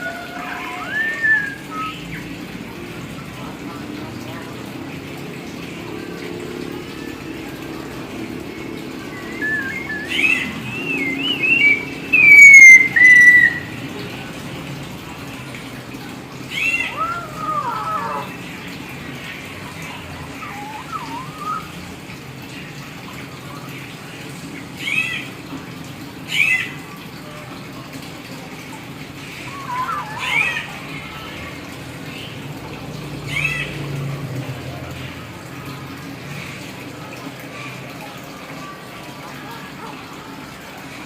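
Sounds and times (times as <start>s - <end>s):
rushing background noise: 0.0s - 26.2s
myna whistling and calling: 0.4s - 2.2s, 9.1s - 13.7s, 16.6s - 18.3s, 20.3s - 21.7s, 29.5s - 30.7s.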